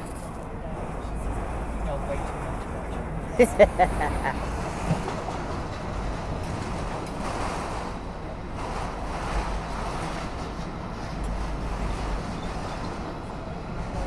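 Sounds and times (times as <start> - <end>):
steel train wheels on rails: 0.0 - 14.0.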